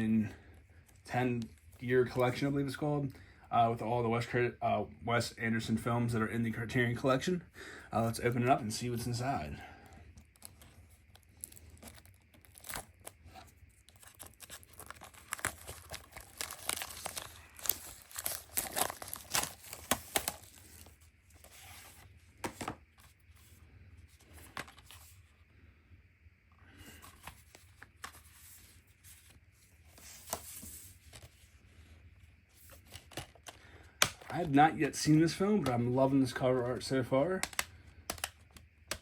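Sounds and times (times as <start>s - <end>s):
plastic shrink-wrap crinkling: 10.2s - 21.1s
package rustling: 10.2s - 23.5s
package clicks: 37.4s - 39.0s.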